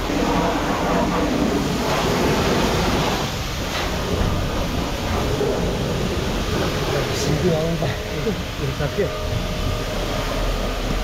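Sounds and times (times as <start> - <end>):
pressure washer spraying water: 0.0 - 11.0.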